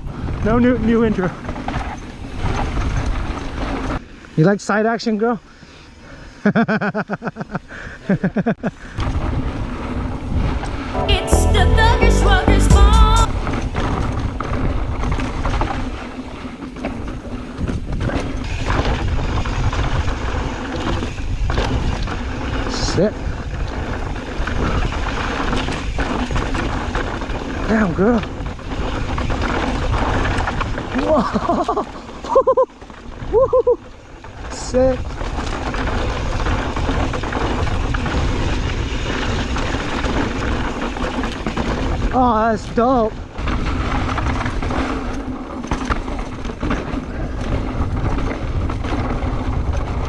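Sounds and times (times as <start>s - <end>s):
bike clattering over rough ground: 0.0s - 4.3s, 13.4s - 50.0s
wind rumble on microphone: 9.0s - 11.0s, 13.3s - 32.4s, 33.1s - 50.0s.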